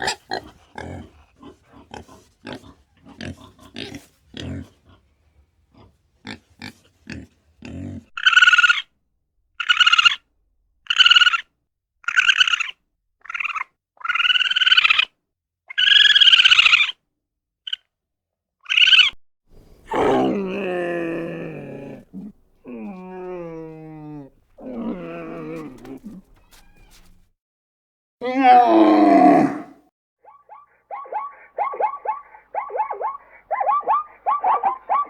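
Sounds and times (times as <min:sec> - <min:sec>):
animal high-pitched cries: 0:09.6 - 0:10.2, 0:12.1 - 0:15.1, 0:18.7 - 0:27.2, 0:30.3 - 0:35.0
animal long low calls: 0:19.5 - 0:27.2, 0:28.2 - 0:29.8.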